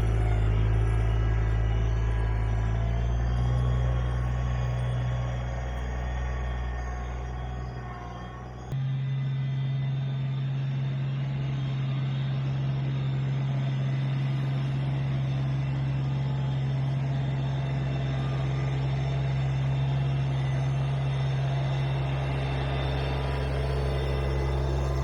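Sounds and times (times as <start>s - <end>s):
road noise: 0.0s - 8.8s
vehicle engine droning: 0.0s - 25.0s.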